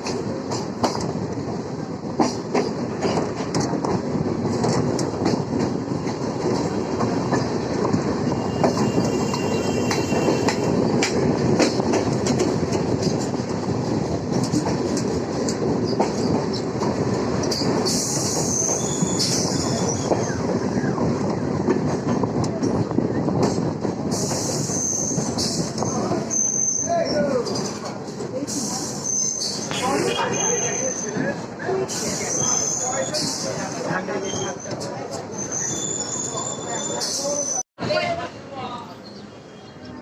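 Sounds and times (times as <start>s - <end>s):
electric train rumbling: 0.0s - 40.0s
high-pitched wheel squeal: 8.3s - 10.5s, 32.0s - 37.6s.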